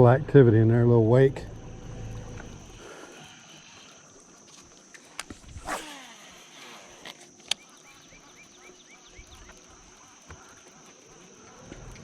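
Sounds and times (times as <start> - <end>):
high insect drone: 0.0 - 12.0
bird chirping: 7.5 - 10.0.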